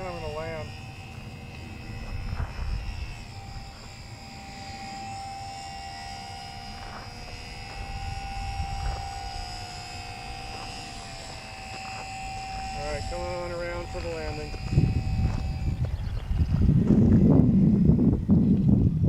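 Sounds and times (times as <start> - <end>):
wind rumbling on microphone: 0.0 - 5.3, 6.0 - 19.0
model airplane motor whine: 0.0 - 19.0.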